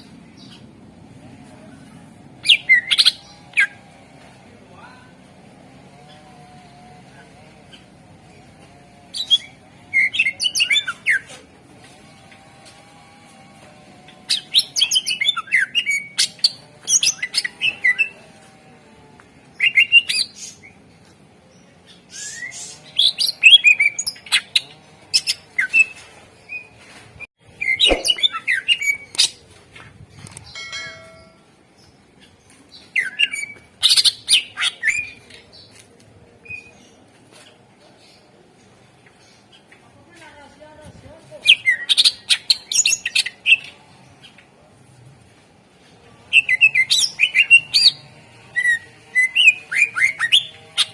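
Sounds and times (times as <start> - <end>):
bird singing chirps and trills: 27.6 - 29.3.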